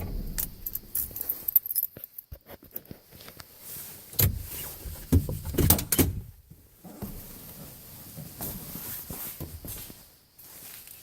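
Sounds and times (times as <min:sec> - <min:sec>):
truck door opening and shutting: 0:00.0 - 0:01.4, 0:04.2 - 0:06.3
keys clicking and jingling: 0:00.0 - 0:02.3.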